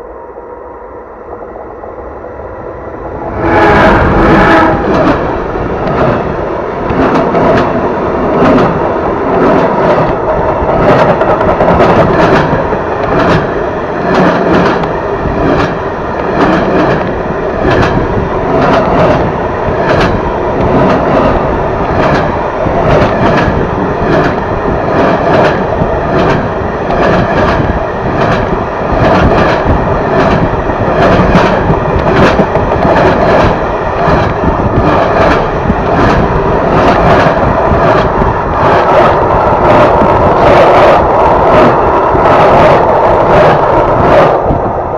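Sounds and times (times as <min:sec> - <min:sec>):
train running on rails: 0:00.0 - 0:44.9
wheels clicking over rail joints: 0:06.8 - 0:42.6.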